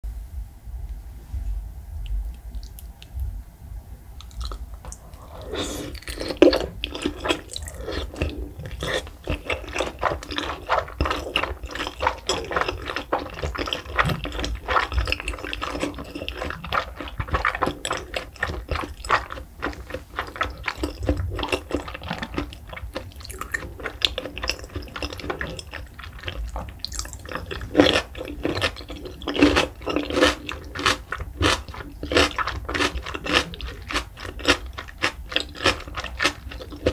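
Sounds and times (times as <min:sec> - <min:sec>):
wet chewing mouth sounds: 0:04.2 - 0:36.9.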